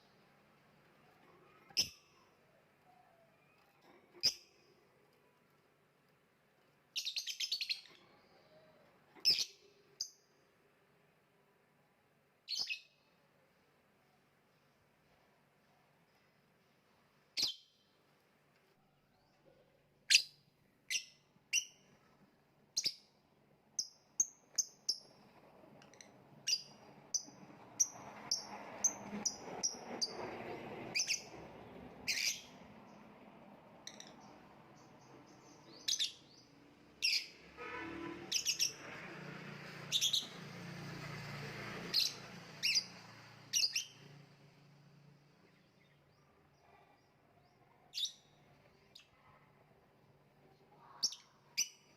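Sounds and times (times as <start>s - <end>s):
lovebird shrill chirps: 38.3s - 38.8s.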